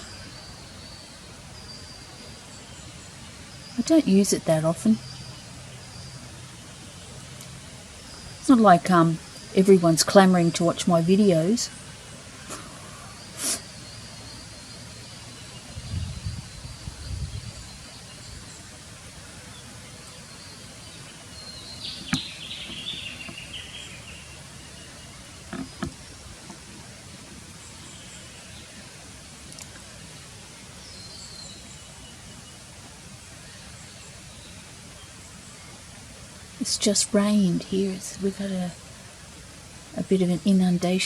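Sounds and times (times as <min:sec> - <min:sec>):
birds calling: 0:00.0 - 0:41.0
steady outdoor hiss: 0:00.0 - 0:41.0
knocks: 0:25.5 - 0:26.6.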